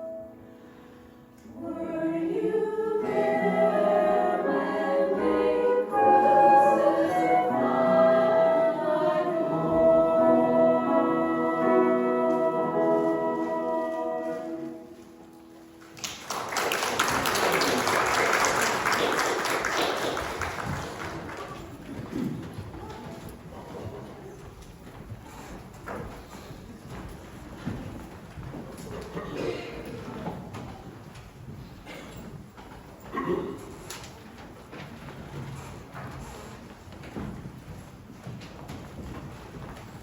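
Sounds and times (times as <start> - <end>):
singing with accompaniment: 1.4 - 15.1
congregation clapping: 15.8 - 22.4.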